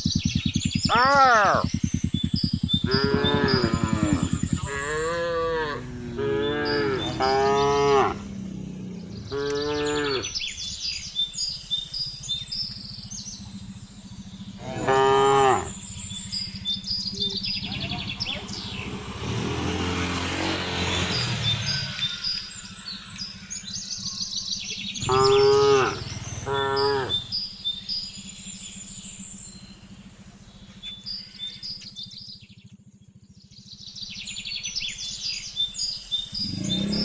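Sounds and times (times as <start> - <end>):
cattle mooing: 0.9 - 1.7, 2.8 - 10.4, 14.6 - 15.8, 25.0 - 27.3, 36.4 - 37.0.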